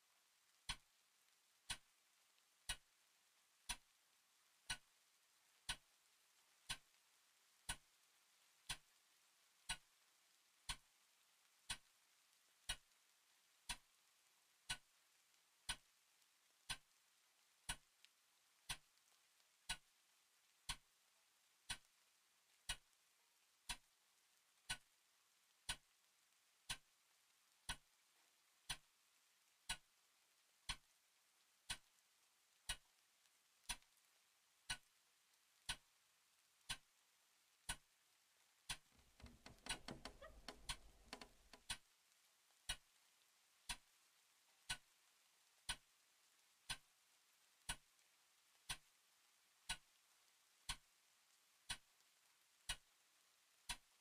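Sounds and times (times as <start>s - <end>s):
clock ticking: 0.6s - 0.9s, 1.6s - 2.0s, 2.6s - 2.9s, 3.6s - 3.9s, 4.6s - 4.9s, 5.6s - 6.0s, 6.6s - 7.0s, 7.6s - 8.0s, 8.6s - 8.9s, 9.6s - 9.9s, 10.6s - 10.9s, 11.6s - 11.9s, 12.6s - 12.9s, 13.6s - 13.9s, 14.6s - 14.9s, 15.6s - 15.9s, 16.6s - 17.0s, 17.6s - 17.9s, 18.6s - 19.0s, 19.6s - 19.9s, 20.6s - 20.9s, 21.6s - 21.9s, 22.6s - 22.9s, 23.6s - 23.9s, 24.6s - 25.0s, 25.6s - 25.9s, 26.7s - 27.0s, 27.6s - 27.9s, 28.6s - 28.9s, 29.6s - 30.0s, 30.6s - 30.9s, 31.6s - 32.0s, 32.6s - 33.0s, 33.6s - 34.0s, 34.7s - 35.0s, 35.6s - 35.9s, 36.7s - 37.0s, 37.7s - 37.9s, 38.7s - 41.9s, 42.7s - 42.9s, 44.7s - 44.9s, 45.6s - 46.0s, 46.7s - 46.9s, 47.7s - 47.9s, 48.7s - 48.9s, 49.7s - 50.0s, 50.7s - 50.9s, 51.7s - 51.9s, 52.7s - 52.9s, 53.7s - 53.9s
low creak: 38.9s - 41.7s.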